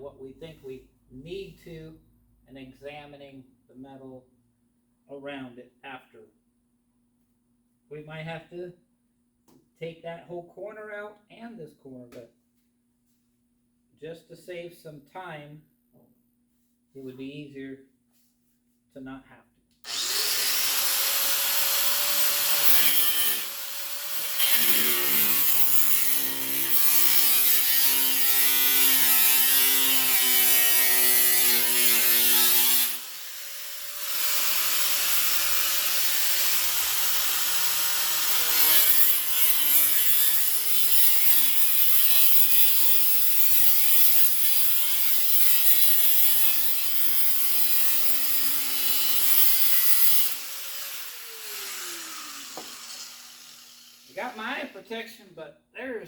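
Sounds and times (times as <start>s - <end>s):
rotary cut-off tool cutting metal: 19.9s - 54.2s.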